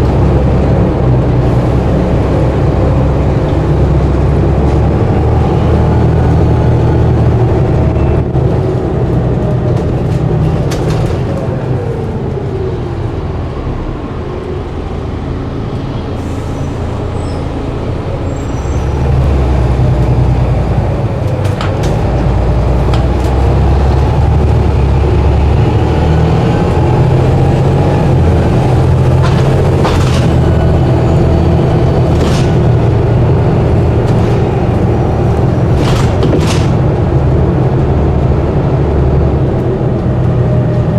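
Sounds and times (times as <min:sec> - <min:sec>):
diesel bus engine running: 0:00.0 - 0:40.9
rattles and clicks: 0:09.0 - 0:11.6, 0:28.8 - 0:31.0, 0:32.0 - 0:37.3.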